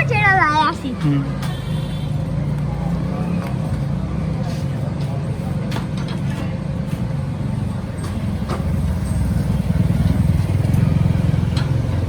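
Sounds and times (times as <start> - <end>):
tractor diesel engine running: 6.7 - 12.0.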